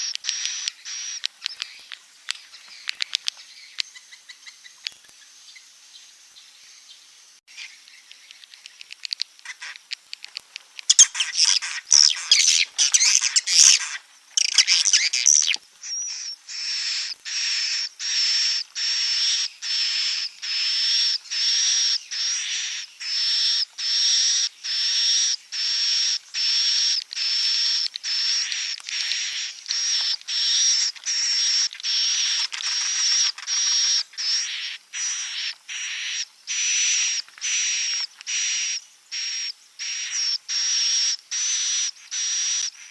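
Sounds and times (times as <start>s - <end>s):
dense twittering chirps: 0.0s - 42.9s
short buzzy bird calls: 10.9s - 42.9s.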